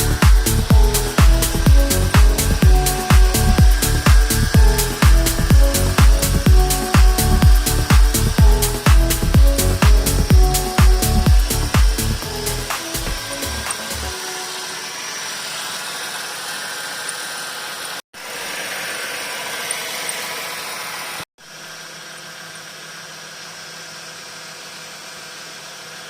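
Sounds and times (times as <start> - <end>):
car engine idling: 0.0 - 18.7.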